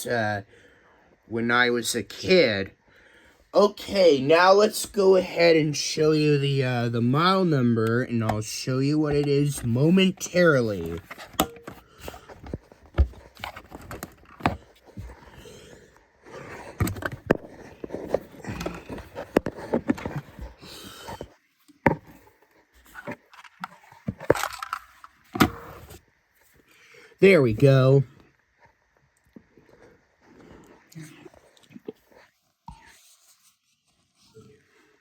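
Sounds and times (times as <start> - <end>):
handling clicks and knocks: 10.7 - 15.2, 23.1 - 25.7.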